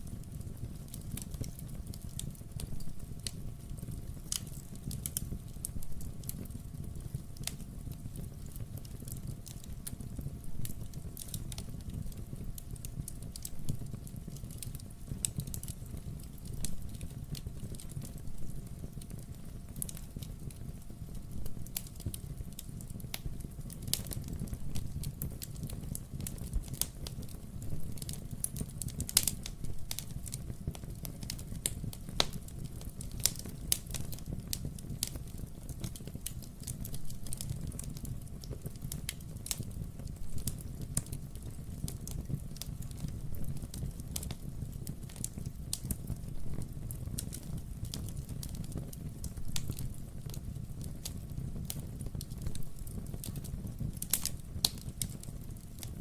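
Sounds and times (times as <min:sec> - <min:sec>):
low rumble of flame: 0:00.0 - 0:56.0
wood fire crackling and popping: 0:00.0 - 0:56.0.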